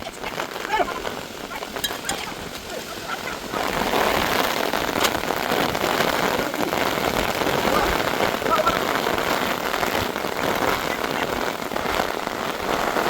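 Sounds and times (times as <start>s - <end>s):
heavy rain on hard surface: 0.0s - 13.0s.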